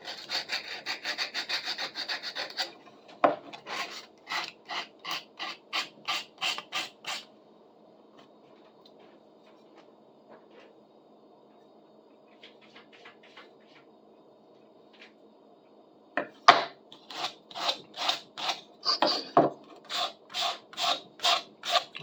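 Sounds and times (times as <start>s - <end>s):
sandpaper scratching wood: 0.0s - 2.7s, 17.1s - 19.3s, 19.9s - 21.9s.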